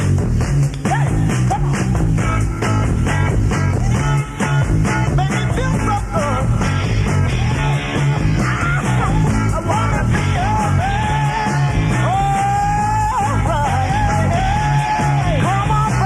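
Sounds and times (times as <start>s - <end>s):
rock band playing: 0.0s - 16.0s
lead vocal singing: 7.3s - 16.0s.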